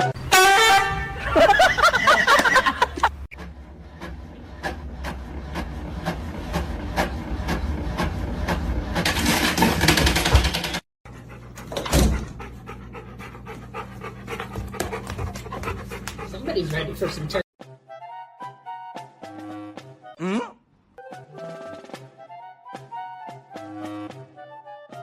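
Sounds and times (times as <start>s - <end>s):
dog panting: 11.1s - 17.4s.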